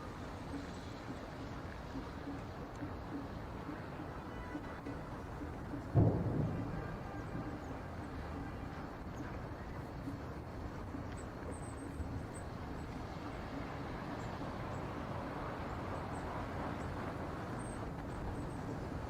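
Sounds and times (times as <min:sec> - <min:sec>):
strong wind buffeting microphone: 0:04.9 - 0:19.0.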